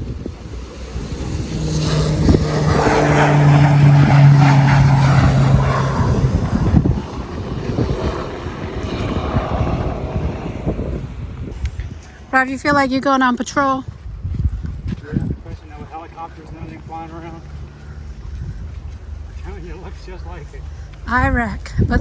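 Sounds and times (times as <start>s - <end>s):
propeller aircraft passing overhead: 0.0s - 22.0s.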